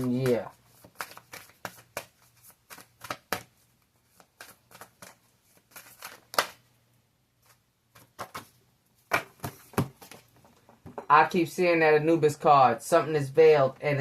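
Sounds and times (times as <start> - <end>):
cards being shuffled: 0.0 - 6.6, 7.4 - 10.5.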